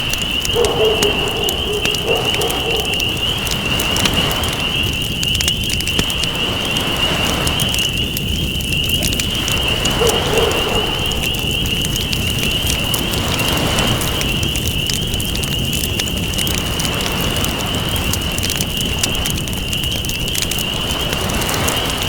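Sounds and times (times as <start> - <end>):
ocean waves: 0.0 - 14.2, 20.4 - 22.0
campfire crackling: 0.0 - 22.0.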